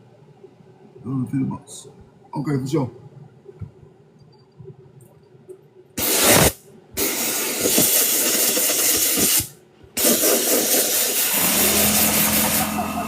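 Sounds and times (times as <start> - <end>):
spray tool hissing: 6.0 - 13.0.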